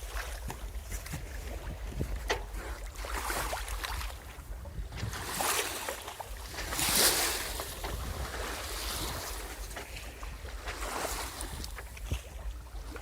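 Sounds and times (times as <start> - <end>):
water splashing along hull: 0.0 - 13.0
wind rumble on microphone: 0.0 - 13.0.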